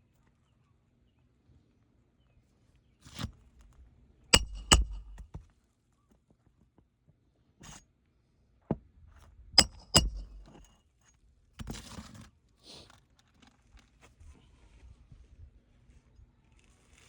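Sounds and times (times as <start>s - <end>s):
ringing metallic knocks: 4.4s - 5.2s, 9.6s - 10.6s
tools knocking on shingles: 4.4s - 5.3s, 9.6s - 10.6s.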